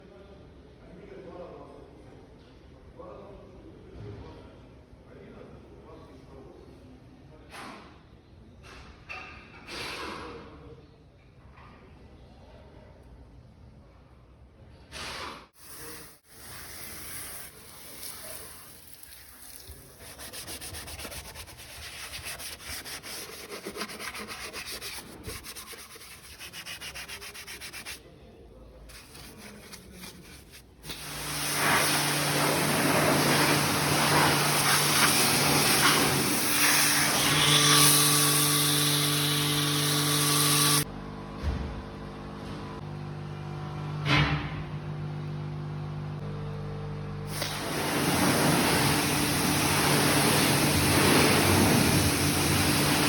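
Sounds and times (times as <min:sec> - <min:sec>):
pressure washer spraying hiss: 0:15.6 - 0:22.0, 0:30.8 - 0:37.2, 0:47.3 - 0:53.0
brush scrubbing: 0:15.7 - 0:28.1, 0:28.9 - 0:36.7.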